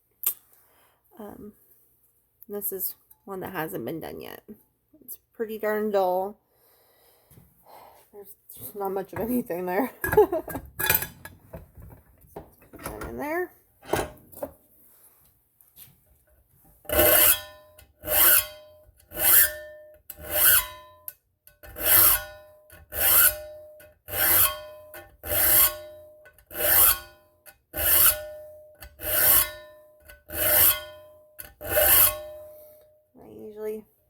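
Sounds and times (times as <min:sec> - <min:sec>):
steel file rasping on metal blade: 0:16.9 - 0:27.2, 0:27.8 - 0:32.8.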